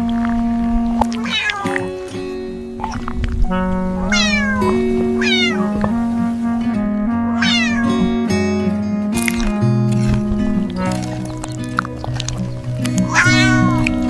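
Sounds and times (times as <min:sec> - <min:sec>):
music with held notes: 0:00.0 - 0:14.0
cat meowing: 0:01.1 - 0:03.0, 0:04.1 - 0:05.8, 0:07.4 - 0:08.1, 0:13.0 - 0:14.0.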